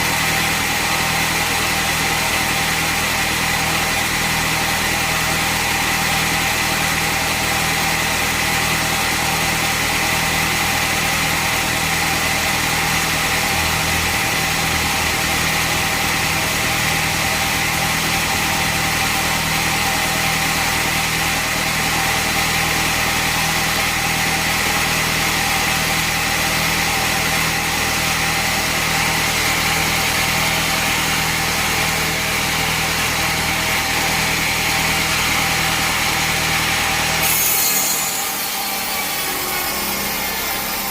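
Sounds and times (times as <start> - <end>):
sawmill machinery engine hum: 0.0 - 40.9.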